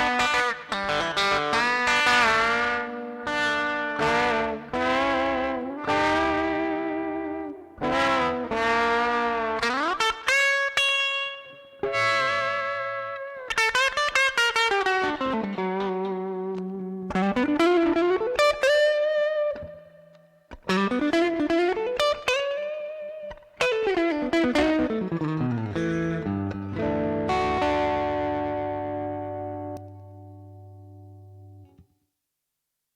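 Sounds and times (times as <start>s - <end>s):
overdriven electric guitar lead: 0.0s - 31.8s.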